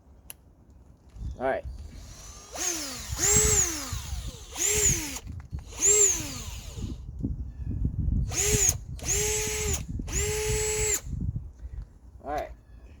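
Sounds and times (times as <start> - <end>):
cordless drill driving screws: 1.8 - 7.1, 8.2 - 11.2
drill bit rumbling into material: 1.8 - 7.1, 8.2 - 11.2.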